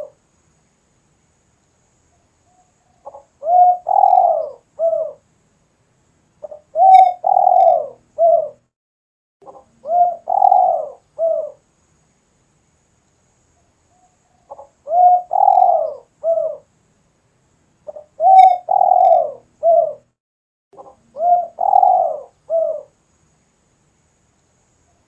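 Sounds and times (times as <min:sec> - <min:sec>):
dove cooing: 0:03.0 - 0:05.2, 0:06.4 - 0:08.6, 0:09.5 - 0:11.6, 0:14.5 - 0:16.7, 0:17.9 - 0:20.1, 0:20.8 - 0:23.0.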